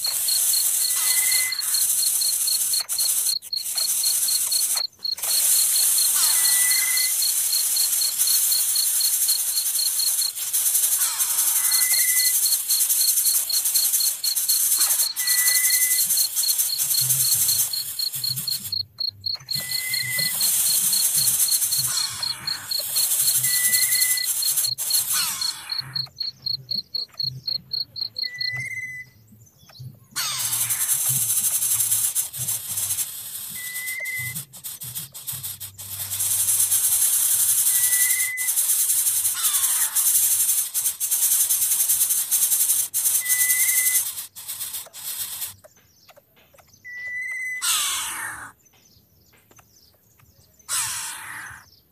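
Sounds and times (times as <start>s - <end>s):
insects buzzing: 0.0s - 28.9s, 30.2s - 46.9s, 47.6s - 48.6s, 50.6s - 51.8s
fast insect chirping pulse: 0.0s - 29.1s, 30.2s - 46.2s, 47.6s - 48.5s, 50.7s - 51.8s.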